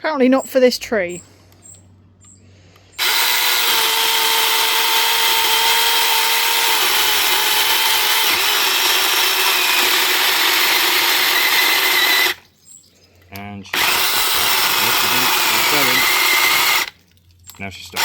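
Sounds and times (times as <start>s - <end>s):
mini chainsaw cutting a log: 3.0s - 12.4s, 13.7s - 17.0s.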